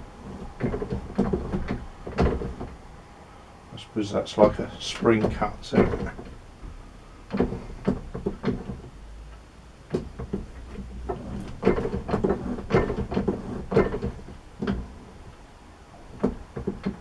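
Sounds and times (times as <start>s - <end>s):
metal clunks and scrapes: 0.1s - 2.8s, 4.4s - 9.0s, 10.0s - 15.4s.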